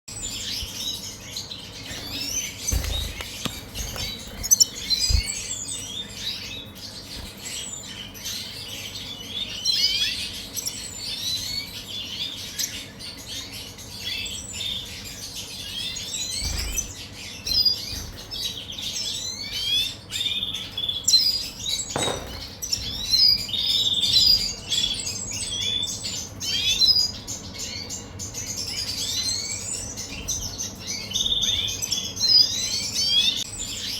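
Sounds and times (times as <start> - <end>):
cage birds chirping: 0.1 - 33.9
soft thumps from cage: 1.9 - 5.4, 21.9 - 23.2.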